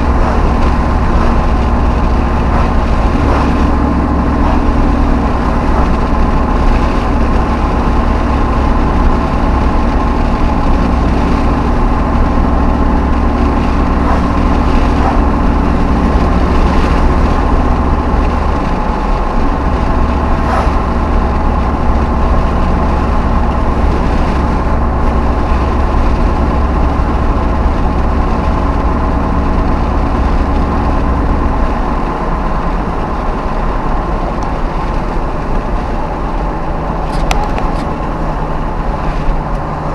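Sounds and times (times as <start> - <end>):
pickup truck engine running: 0.0 - 39.9.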